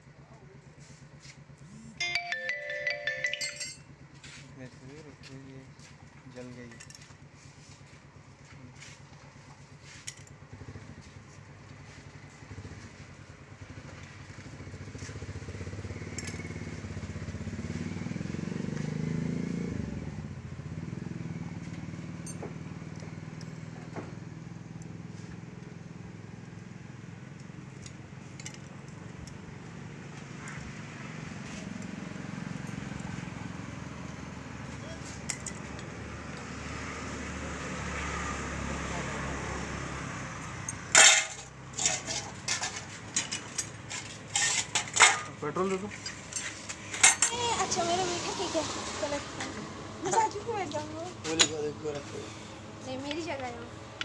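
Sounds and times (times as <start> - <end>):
metal clinks of tools: 2.0 - 3.9, 6.7 - 7.1, 22.2 - 22.5, 35.1 - 35.9, 40.6 - 47.4
motorcycle engine running: 3.6 - 41.8.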